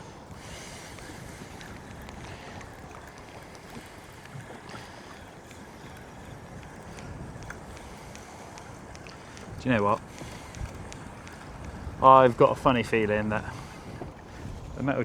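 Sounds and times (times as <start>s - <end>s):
small waves lapping against hull: 0.0s - 15.0s
wind buffeting microphone: 0.0s - 15.0s
light ticks: 0.3s - 14.5s.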